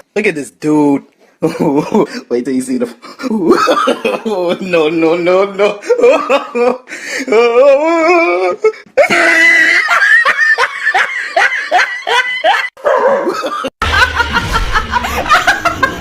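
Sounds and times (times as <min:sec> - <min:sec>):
laughter in short bursts: 0:13.3 - 0:16.0
music with heavy bass: 0:13.8 - 0:16.0.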